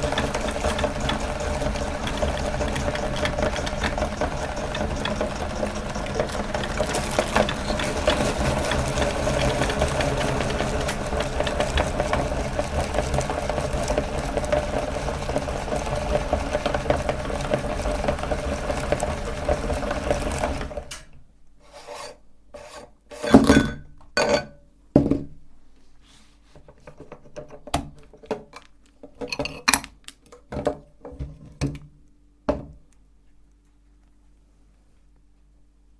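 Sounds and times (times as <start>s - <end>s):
meat grinder grinding: 0.0s - 21.0s.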